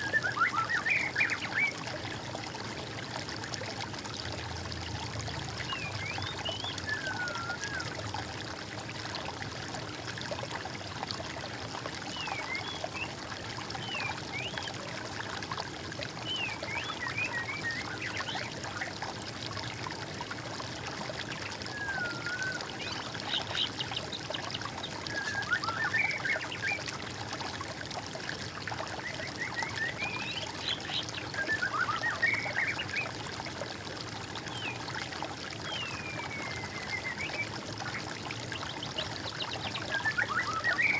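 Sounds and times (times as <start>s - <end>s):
stream trickling: 0.0s - 40.9s
songbirds singing and chirping: 5.5s - 7.9s, 21.3s - 26.9s, 28.8s - 33.2s, 34.3s - 40.9s.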